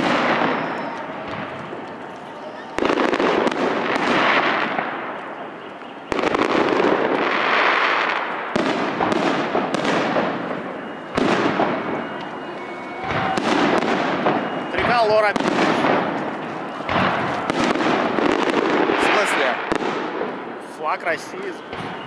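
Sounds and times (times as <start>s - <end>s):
sharp firework pops: 0.0s - 2.0s, 6.1s - 12.4s, 15.3s - 20.4s
fireworks bursting with loud bangs: 0.0s - 22.0s.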